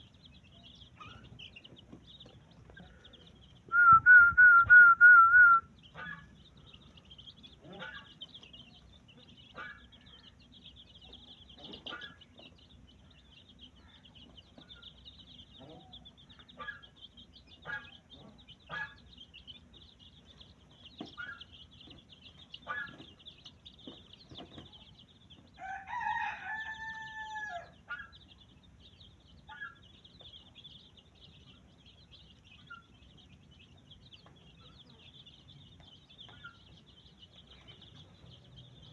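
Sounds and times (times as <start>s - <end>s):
clucks and chirps: 0.0s - 4.0s, 5.5s - 38.9s
rooster crowing: 25.6s - 27.8s.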